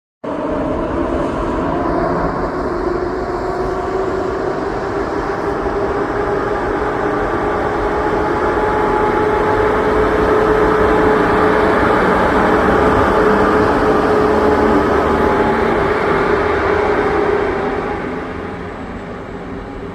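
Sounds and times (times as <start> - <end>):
train wheels rumbling on rails: 0.3 - 19.9.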